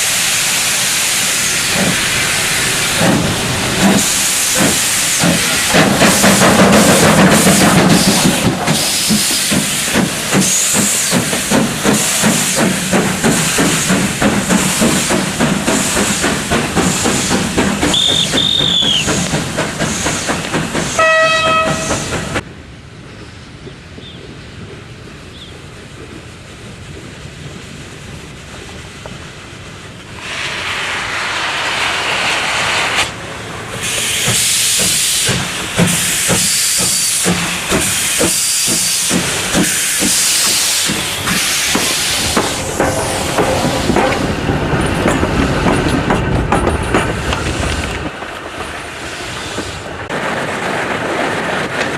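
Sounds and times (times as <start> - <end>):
loud steam hiss: 0.0 - 22.4, 25.1 - 51.8
steam locomotive exhaust chuffs: 0.0 - 22.4, 25.8 - 50.1
steam whistle blast: 17.9 - 19.1, 21.0 - 22.1.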